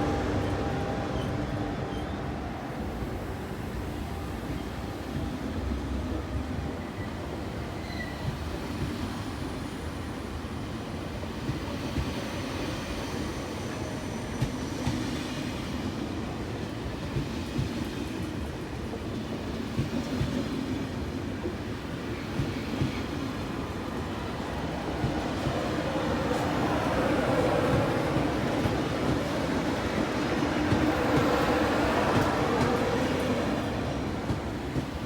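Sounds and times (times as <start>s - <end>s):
train rumbling: 0.0s - 35.0s
faint thin squeal: 7.7s - 8.3s.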